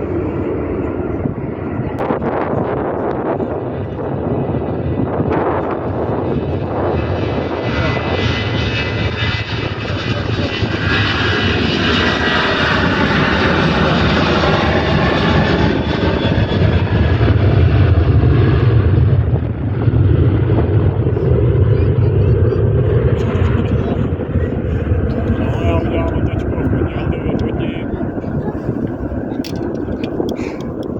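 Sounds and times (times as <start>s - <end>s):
jet airliner passing: 0.0s - 30.9s.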